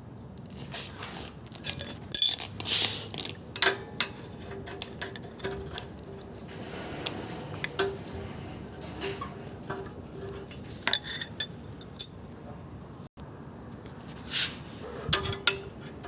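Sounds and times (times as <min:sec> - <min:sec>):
metallic clinks in engine bay: 0:01.6 - 0:02.6, 0:07.6 - 0:12.6, 0:15.1 - 0:16.0.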